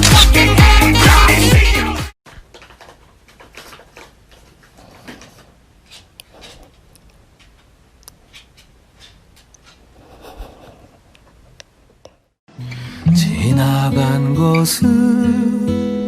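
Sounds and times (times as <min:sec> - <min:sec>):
faint clicks and taps: 0:02.3 - 0:10.2.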